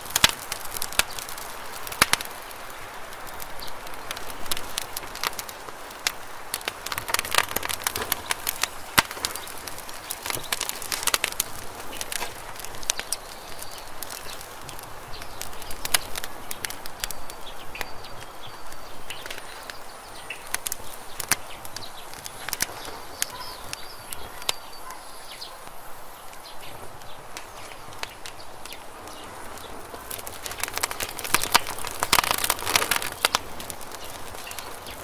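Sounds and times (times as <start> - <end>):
campfire crackling and popping: 0.0 - 35.0
faint bird chirps: 15.0 - 26.8.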